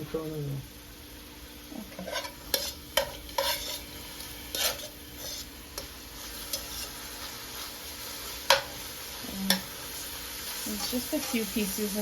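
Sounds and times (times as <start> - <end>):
food sizzling in a frying pan: 0.0 - 12.0
utensil knocking and scraping pan: 2.0 - 3.9, 4.5 - 5.9.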